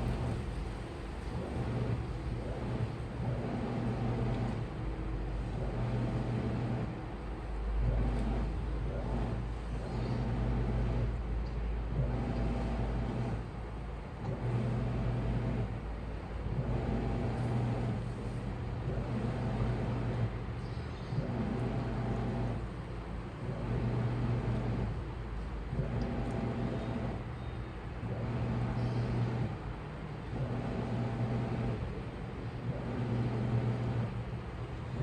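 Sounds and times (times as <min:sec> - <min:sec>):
washing machine drum motor humming: 0:00.0 - 0:11.2, 0:11.9 - 0:35.0.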